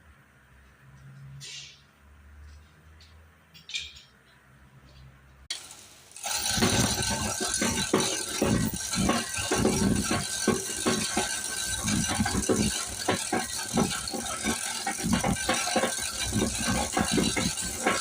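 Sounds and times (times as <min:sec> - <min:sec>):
engine knocking and rattling: 0:05.5 - 0:18.0.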